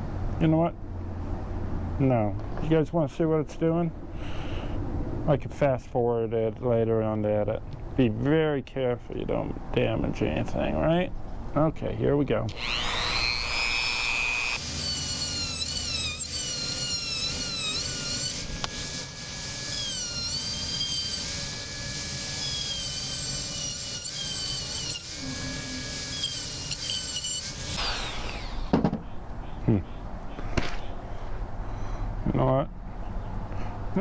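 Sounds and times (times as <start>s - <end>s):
rotary tool whining: 12.5s - 29.0s.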